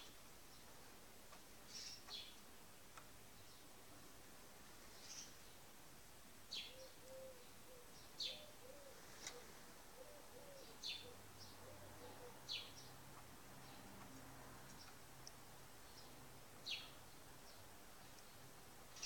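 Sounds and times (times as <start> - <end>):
small bird chirping: 1.7 - 2.4, 4.9 - 5.4, 14.6 - 19.0
dove cooing: 6.7 - 12.7.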